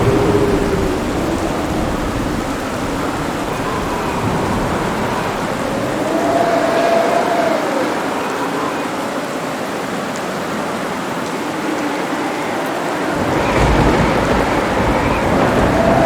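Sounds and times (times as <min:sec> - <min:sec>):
thunder rumbling: 0:00.0 - 0:08.1, 0:11.4 - 0:16.0
heavy rain: 0:00.0 - 0:16.0.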